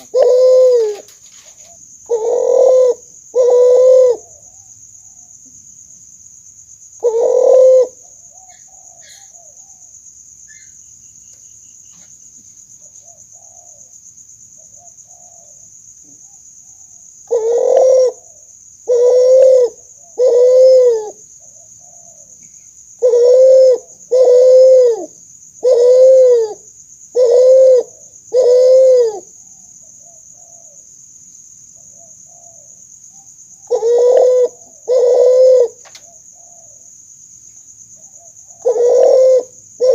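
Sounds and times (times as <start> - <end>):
dove cooing: 0.0 - 4.7, 7.0 - 9.9, 14.6 - 15.7, 16.3 - 30.8, 33.6 - 36.9, 38.0 - 39.9.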